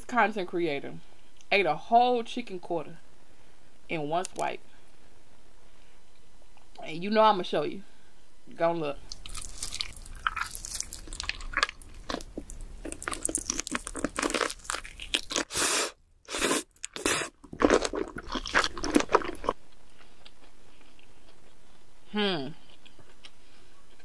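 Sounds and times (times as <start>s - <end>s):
person chewing crunchy food: 9.1s - 21.9s, 22.6s - 24.0s.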